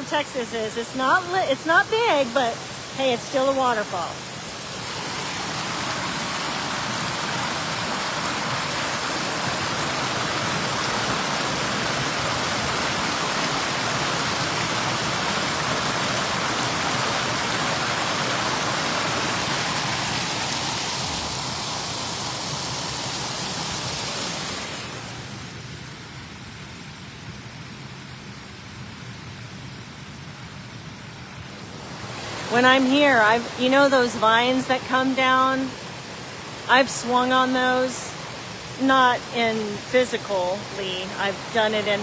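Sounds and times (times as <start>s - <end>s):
water pouring over waterfall: 3.6s - 25.5s.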